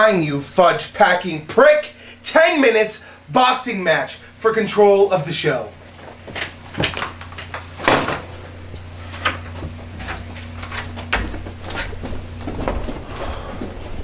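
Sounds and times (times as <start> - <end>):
steady low hum: 0.0 - 14.0
knocks clicks and shuffles: 5.9 - 14.0.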